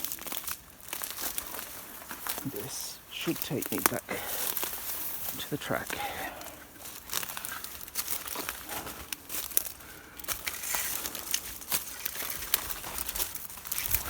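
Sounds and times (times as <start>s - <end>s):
footsteps crunching through dry leaves: 0.0s - 14.0s.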